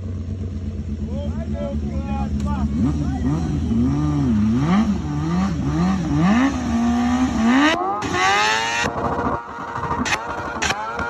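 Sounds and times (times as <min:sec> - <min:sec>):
motorcycle engine revving: 0:00.0 - 0:11.0
exhaust crackles and pops: 0:02.3 - 0:02.7, 0:08.0 - 0:11.0.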